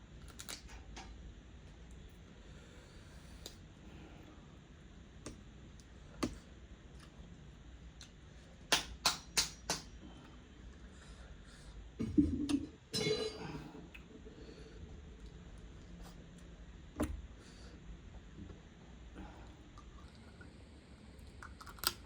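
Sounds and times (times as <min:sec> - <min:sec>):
crab shell cracking: 0:21.4 - 0:22.0.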